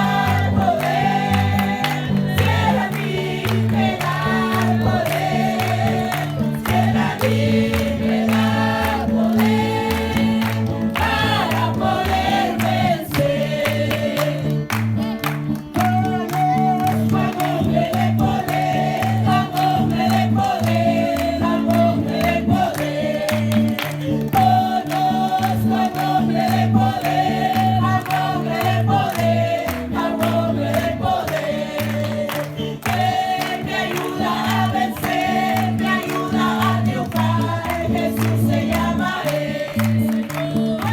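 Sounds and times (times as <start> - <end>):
group singing gospel chorus: 0.0 - 14.9, 16.9 - 40.9.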